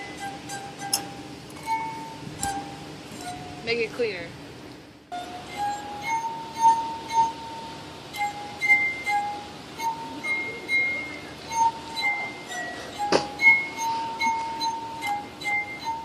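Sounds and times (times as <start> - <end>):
tuned glasses ringing melody: 0.0 - 4.2, 5.1 - 16.0.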